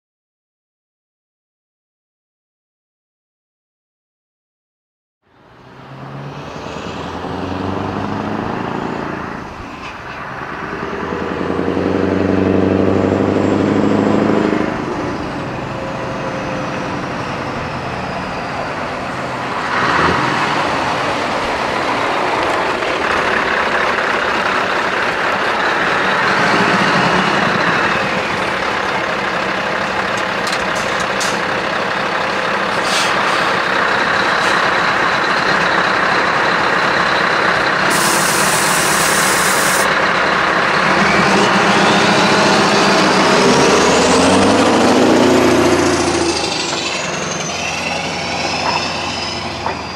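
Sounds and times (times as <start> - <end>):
truck engine revving: 5.5 - 49.9.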